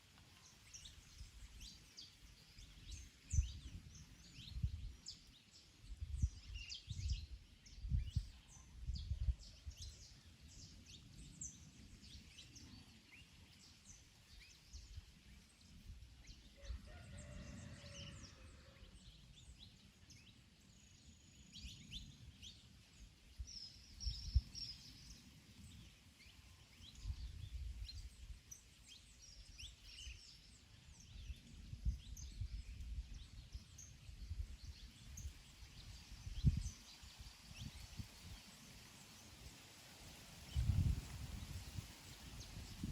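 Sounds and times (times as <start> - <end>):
wind gusting: 40.5 - 42.9.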